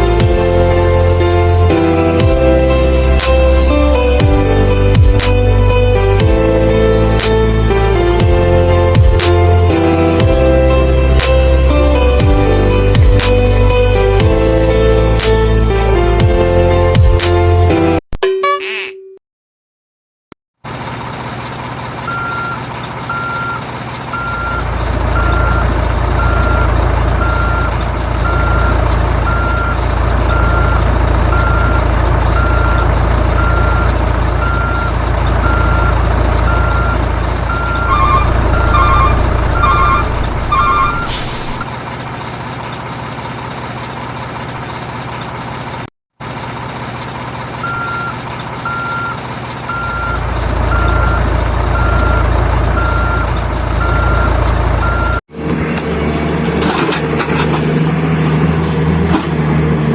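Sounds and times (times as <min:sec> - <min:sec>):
low motor drone: 0:00.0 - 0:16.9, 0:28.3 - 0:41.6
toy truck reversing beeps: 0:22.1 - 0:41.6, 0:47.6 - 0:55.2
fast double beeps: 0:36.5 - 0:41.6.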